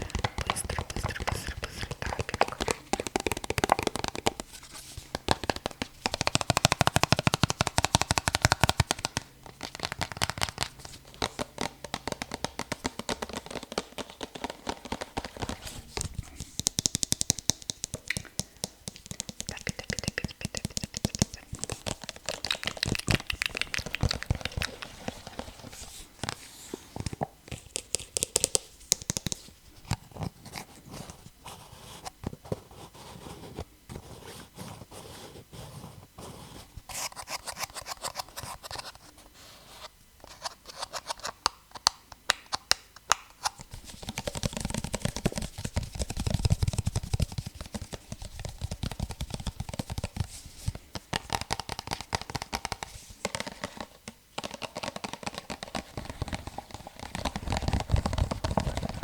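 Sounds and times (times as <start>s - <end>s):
fingers tapping on objects: 0.0s - 4.5s, 5.1s - 15.6s, 16.4s - 25.7s, 27.0s - 29.5s, 41.3s - 59.0s.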